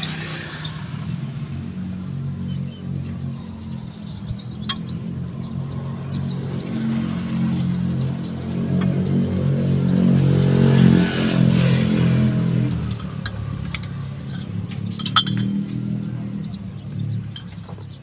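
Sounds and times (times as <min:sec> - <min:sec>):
metallic clinks: 0:12.9 - 0:16.2.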